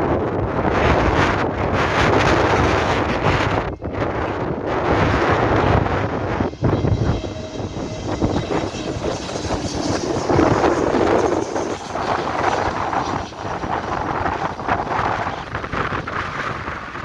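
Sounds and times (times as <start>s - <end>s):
gusty wind buffeting microphone: 0.0s - 17.0s.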